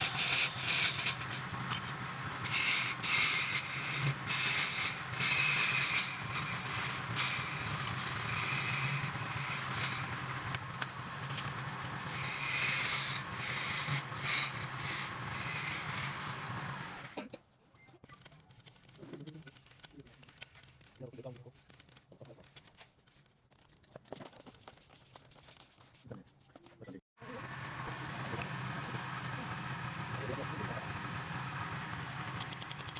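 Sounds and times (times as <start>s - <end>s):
tool rasping on spinning wood: 0.0s - 17.1s
lathe motor hum: 0.0s - 17.2s, 27.2s - 32.6s.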